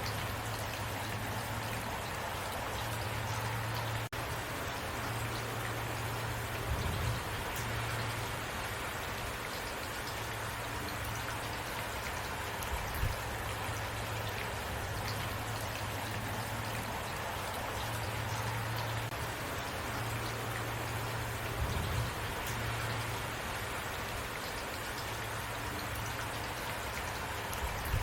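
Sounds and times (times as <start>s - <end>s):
low steady rumble: 0.0s - 9.3s, 12.6s - 23.7s.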